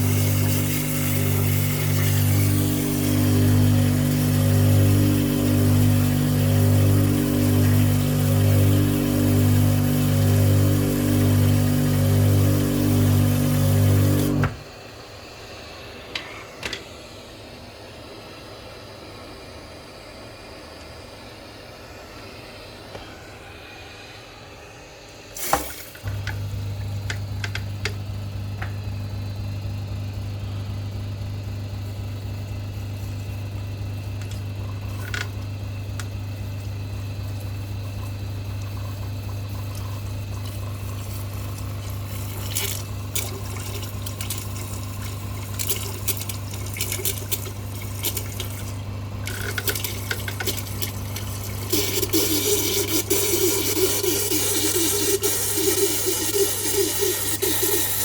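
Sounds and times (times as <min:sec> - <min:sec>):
steam cleaner pump humming: 0:00.0 - 0:58.0
steam cleaner clicks: 0:45.6 - 0:53.2
steam hissing: 0:49.6 - 0:58.0.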